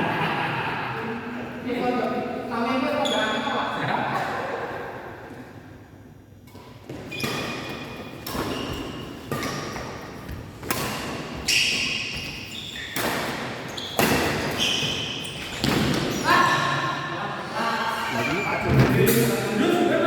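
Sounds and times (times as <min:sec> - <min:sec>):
racket hitting shuttlecock: 0:06.5 - 0:14.6.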